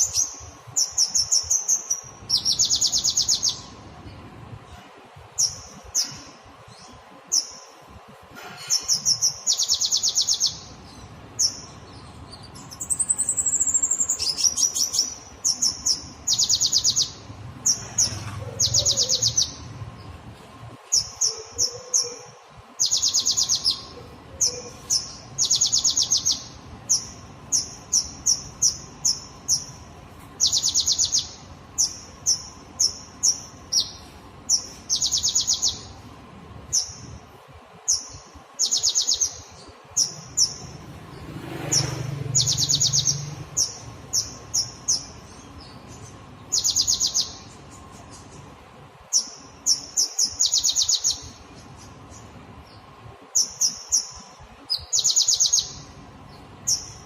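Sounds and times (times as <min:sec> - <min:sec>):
songbird chirping and rattling: 0:08.4 - 0:37.2, 0:37.9 - 0:57.0.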